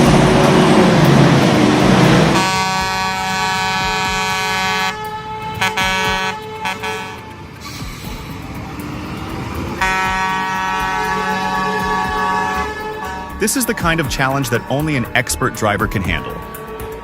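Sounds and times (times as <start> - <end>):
truck engine noise: 0.0 - 17.0
truck air horn blasts: 1.9 - 8.8, 9.7 - 13.8.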